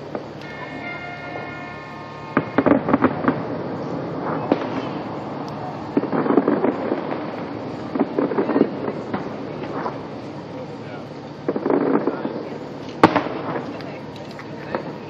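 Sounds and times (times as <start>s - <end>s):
fireworks cracking and popping: 0.0s - 15.0s
high-pitched tone: 0.4s - 4.2s.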